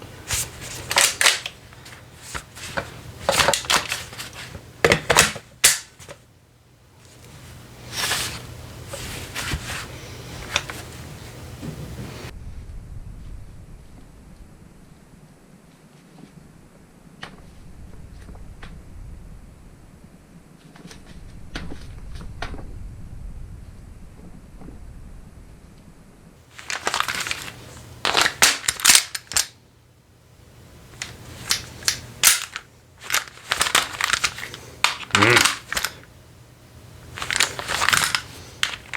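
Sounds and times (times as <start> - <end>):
rustling handling noise: 0.0 - 6.2, 7.0 - 12.3, 26.4 - 29.6, 30.9 - 36.1, 37.1 - 38.9.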